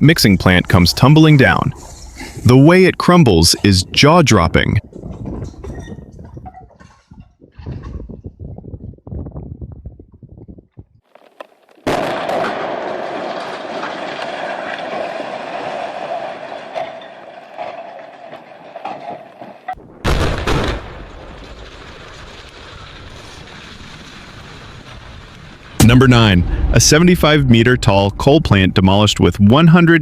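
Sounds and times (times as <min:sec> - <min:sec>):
building collapse noise: 0:11.2 - 0:30.0
loud demolition blasts: 0:11.9 - 0:18.2, 0:19.8 - 0:29.5.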